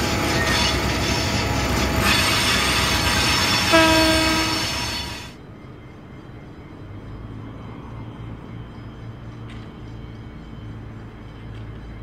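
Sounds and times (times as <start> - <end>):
train wagons rattling: 0.0 - 7.2
train horn blast: 2.0 - 5.3.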